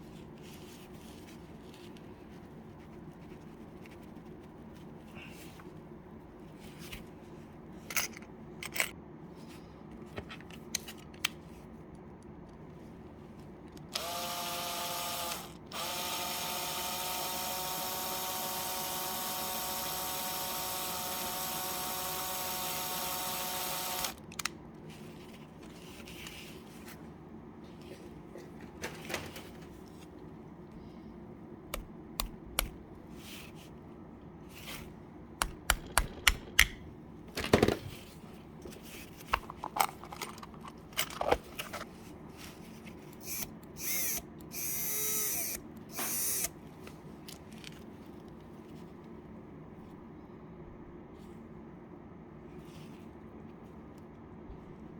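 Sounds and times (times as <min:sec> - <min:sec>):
clicks and knocks of handling parts: 0:07.8 - 0:09.0, 0:10.0 - 0:12.6, 0:24.0 - 0:24.6, 0:35.4 - 0:42.0, 0:46.8 - 0:48.4
electric drill motor running: 0:13.9 - 0:24.2, 0:43.2 - 0:46.5.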